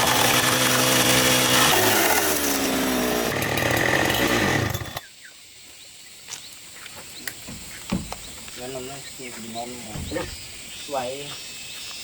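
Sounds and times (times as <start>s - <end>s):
small engine running: 0.0s - 5.1s
light clicks and knocks: 7.2s - 8.6s.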